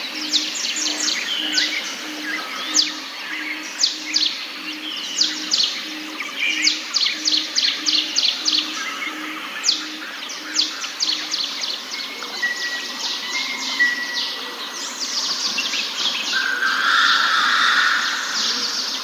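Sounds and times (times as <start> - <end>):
dense bird chorus: 0.0 - 19.0.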